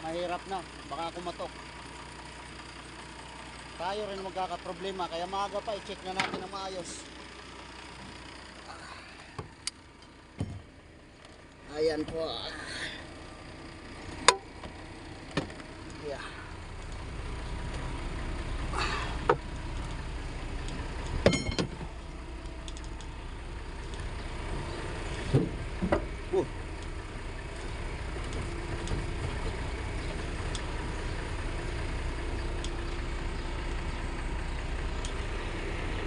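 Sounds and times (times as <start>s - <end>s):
truck engine running: 0.0s - 36.0s
knocks and clanks: 10.4s - 10.7s, 21.2s - 21.9s.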